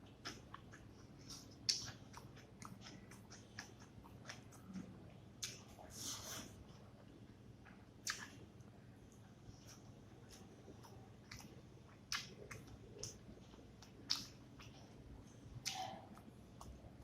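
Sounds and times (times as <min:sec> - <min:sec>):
person chewing food: 0:00.0 - 0:17.0
wet mouth clicks and smacks: 0:08.0 - 0:08.4, 0:12.1 - 0:13.2, 0:13.8 - 0:14.8, 0:15.6 - 0:16.8.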